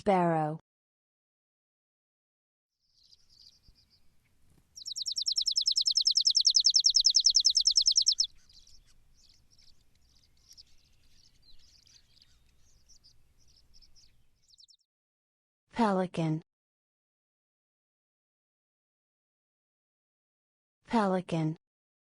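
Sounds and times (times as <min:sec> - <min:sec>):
sparrow chirps and trill: 0:02.8 - 0:14.8.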